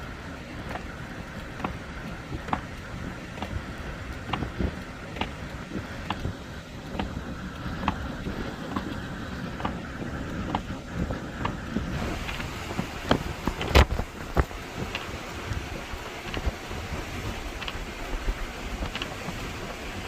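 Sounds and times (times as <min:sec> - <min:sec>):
blizzard wind buffeting microphone: 0:00.0 - 0:20.0
sharp ticks and taps: 0:00.7 - 0:08.0, 0:17.6 - 0:17.9.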